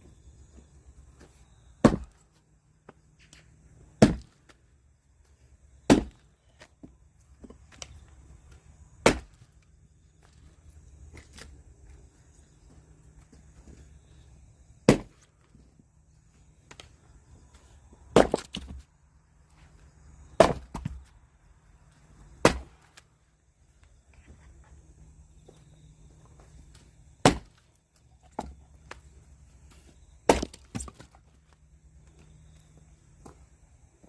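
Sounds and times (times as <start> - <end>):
axe chopping firewood: 1.8 - 2.3, 3.9 - 4.6, 5.8 - 6.8, 9.0 - 9.6, 14.8 - 15.4, 18.1 - 18.8, 20.3 - 21.1, 22.4 - 23.1, 26.7 - 29.0, 30.2 - 31.2
wood splitting crackle: 5.8 - 6.7, 7.4 - 10.3, 14.8 - 15.4, 18.1 - 18.9, 20.3 - 21.1, 22.4 - 23.1, 26.7 - 31.6.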